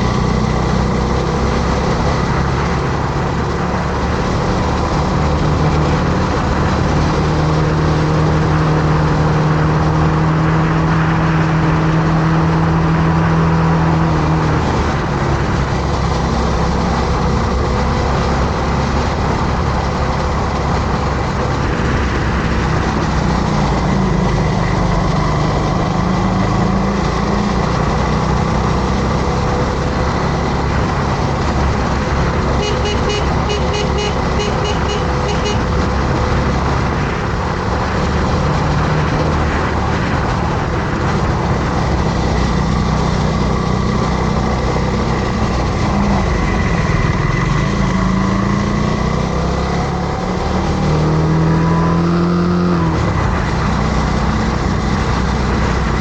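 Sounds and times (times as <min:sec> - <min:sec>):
wind and road noise: 0:00.0 - 0:56.0
motorcycle engine running: 0:14.1 - 0:51.0.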